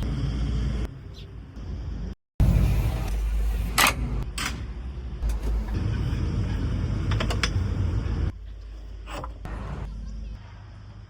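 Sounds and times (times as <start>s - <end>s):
metallic clanks and creaks: 8.6s - 9.5s.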